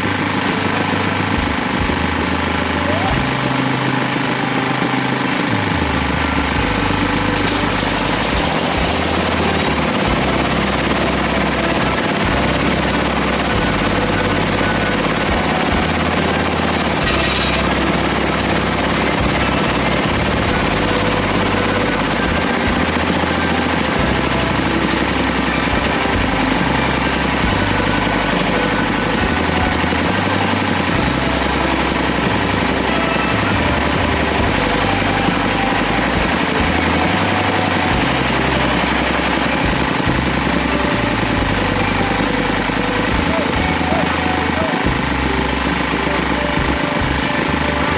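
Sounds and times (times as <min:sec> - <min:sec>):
drilling rig engine running: 0:00.0 - 0:47.9.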